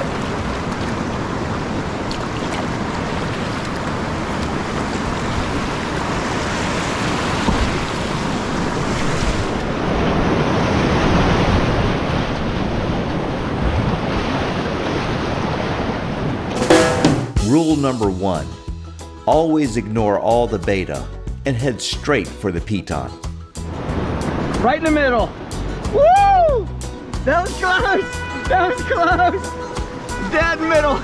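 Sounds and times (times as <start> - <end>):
whitewater roaring: 0.0 - 16.5.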